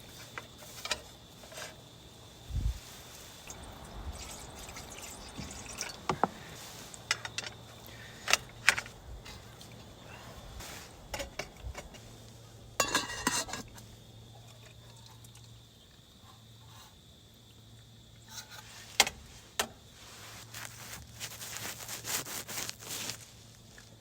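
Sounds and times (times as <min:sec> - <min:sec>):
rustling: 0:00.0 - 0:14.0, 0:18.4 - 0:24.0
metal cookware clinking: 0:12.8 - 0:13.8.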